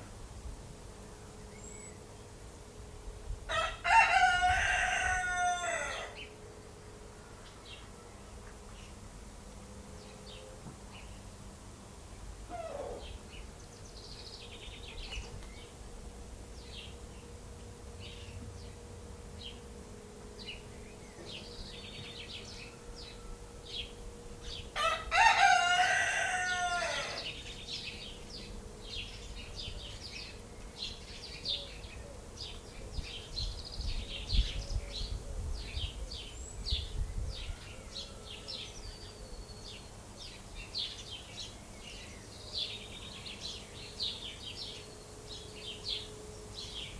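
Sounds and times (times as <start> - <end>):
rooster crowing: 3.5 - 6.3, 24.7 - 27.4, 37.4 - 38.9.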